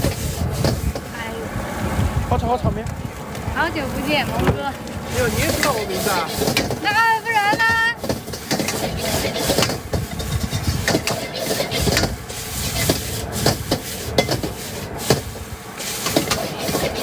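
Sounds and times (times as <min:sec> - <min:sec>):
metal spatula scraping wok: 0:00.0 - 0:01.1, 0:05.1 - 0:17.0.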